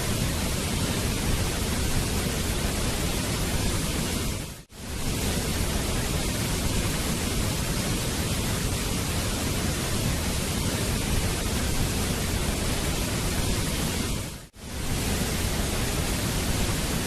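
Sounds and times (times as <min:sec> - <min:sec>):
waterfall rushing: 0:04.8 - 0:17.0.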